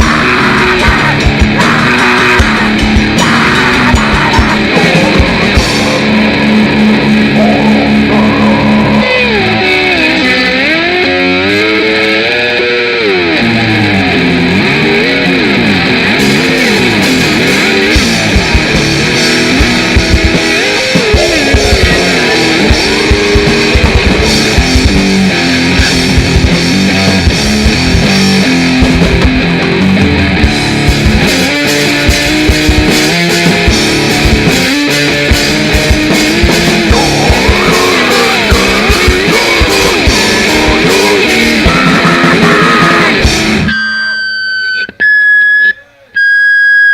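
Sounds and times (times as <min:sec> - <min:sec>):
fast drum hits: 0:00.0 - 0:07.3, 0:16.9 - 0:29.8, 0:30.4 - 0:43.7
distorted electric guitar: 0:00.0 - 0:46.0.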